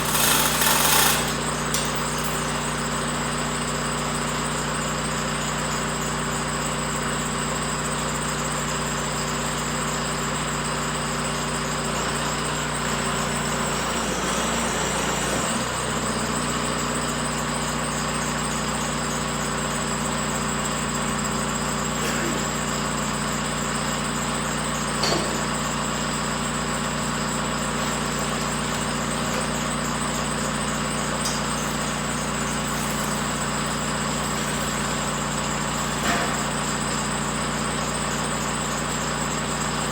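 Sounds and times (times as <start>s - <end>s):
engine idling: 16.0s - 39.9s.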